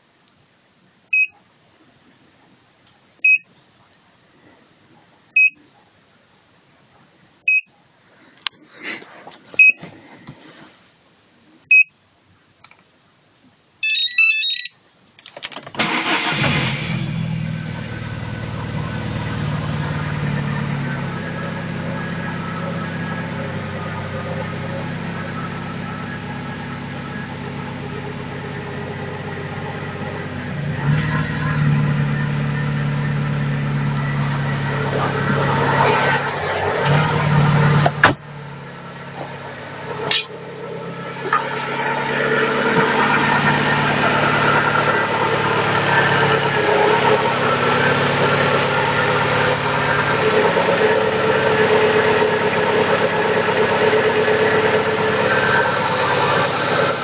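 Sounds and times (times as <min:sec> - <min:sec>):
car immobiliser beeping: 0:01.1 - 0:01.4, 0:03.2 - 0:03.5, 0:05.4 - 0:05.6, 0:07.5 - 0:07.7, 0:09.6 - 0:09.8, 0:11.7 - 0:11.9, 0:13.8 - 0:14.8
car engine starting and idling: 0:15.2 - 0:57.0.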